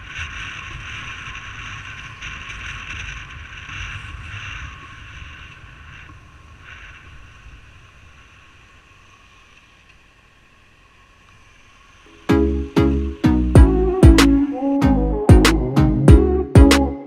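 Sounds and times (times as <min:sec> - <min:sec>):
low rumble: 0:12.3 - 0:17.0.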